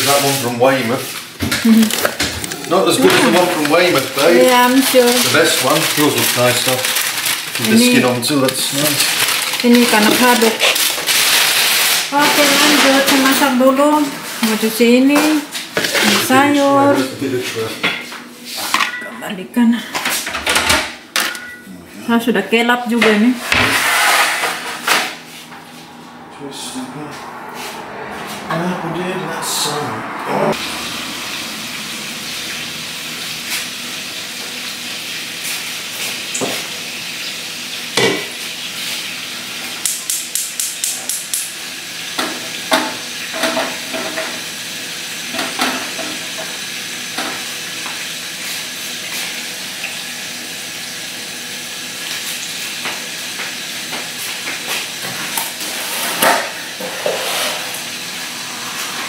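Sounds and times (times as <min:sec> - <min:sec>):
clatter of pans and utensils: 0:00.0 - 0:19.2, 0:19.8 - 0:21.6, 0:22.9 - 0:25.2, 0:38.0 - 0:39.0, 0:39.6 - 0:44.5, 0:45.3 - 0:47.5, 0:52.1 - 0:57.9.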